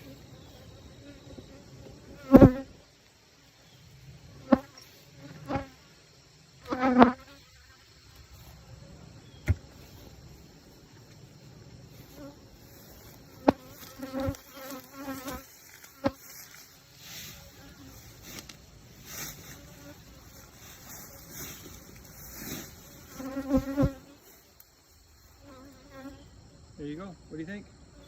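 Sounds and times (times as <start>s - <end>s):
hive humming: 0.0s - 2.8s, 4.2s - 28.0s
honeybees buzzing past: 0.0s - 2.8s, 6.6s - 8.6s, 11.4s - 26.4s.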